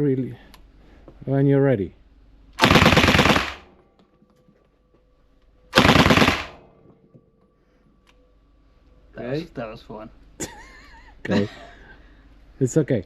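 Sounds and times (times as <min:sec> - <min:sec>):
submachine gun bursts: 0:02.6 - 0:03.7, 0:05.8 - 0:06.6.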